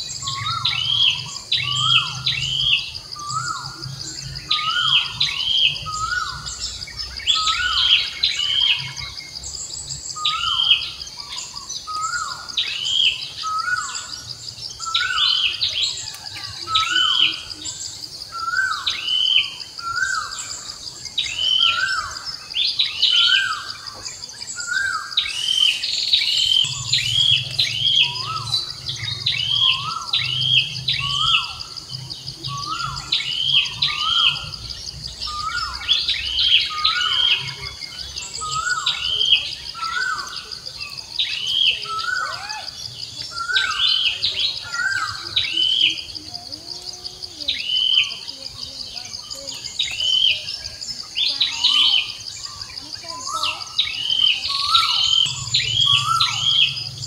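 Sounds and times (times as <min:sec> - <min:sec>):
birds calling: 0:00.0 - 0:57.0
high-pitched insect drone: 0:00.0 - 0:57.0.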